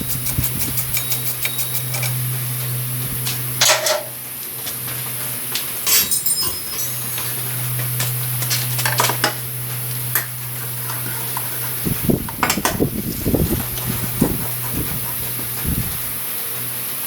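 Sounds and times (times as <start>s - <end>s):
steady low hum: 0.0s - 17.0s
light metallic clinks: 5.9s - 8.0s.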